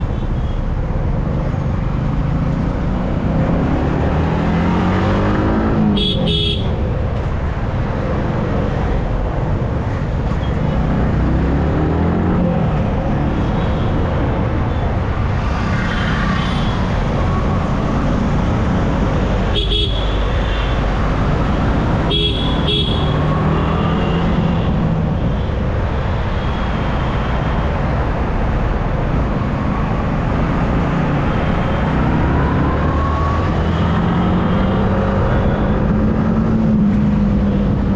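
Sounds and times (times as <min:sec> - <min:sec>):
wind and road noise: 0:00.0 - 0:37.9
vehicle horns honking: 0:06.0 - 0:06.8, 0:19.5 - 0:20.8, 0:22.1 - 0:24.7.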